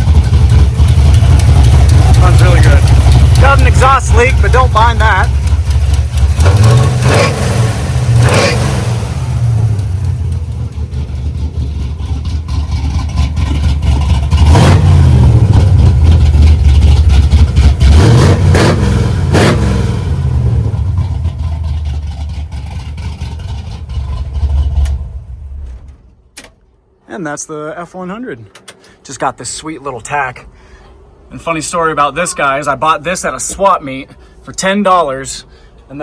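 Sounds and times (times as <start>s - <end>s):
engine revving: 0.0s - 25.8s.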